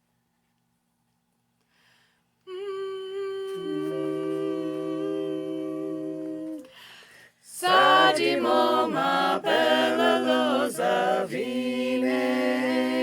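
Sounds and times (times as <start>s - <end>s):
voices humming in harmony: 2.5s - 6.8s, 7.5s - 13.0s.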